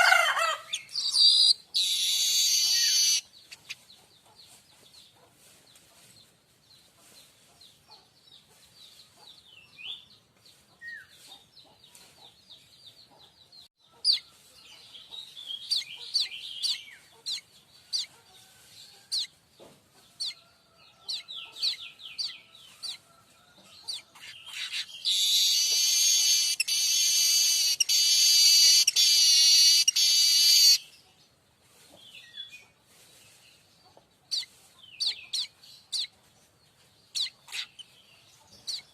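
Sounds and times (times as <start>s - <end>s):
buzzing rattling bird song: 0.7s - 4.3s, 23.9s - 30.9s
bird chirps: 0.7s - 5.2s, 7.9s - 18.2s, 21.0s - 23.0s, 23.7s - 31.2s, 32.0s - 38.9s.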